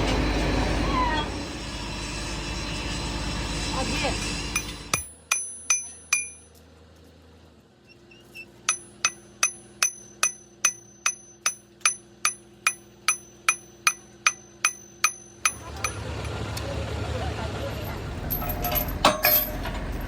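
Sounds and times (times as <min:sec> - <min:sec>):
hammer clanging on steel: 0:04.5 - 0:06.6, 0:08.6 - 0:16.3, 0:18.3 - 0:19.9.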